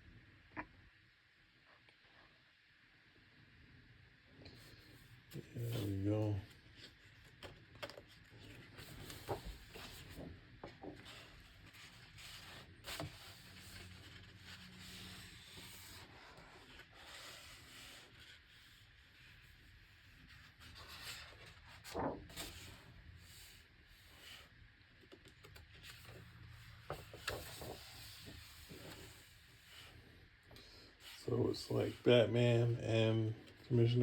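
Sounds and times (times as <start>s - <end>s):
heavy paper pages sliding: 5.4s - 6.1s, 6.7s - 19.6s, 25.8s - 30.1s
page rustle: 5.4s - 18.9s, 20.2s - 23.6s, 24.2s - 30.0s.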